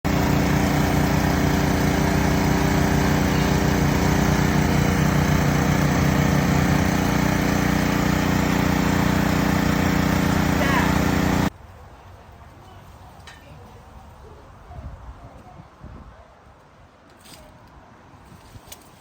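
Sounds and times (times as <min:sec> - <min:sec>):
small engine running steadily: 0:00.0 - 0:11.5.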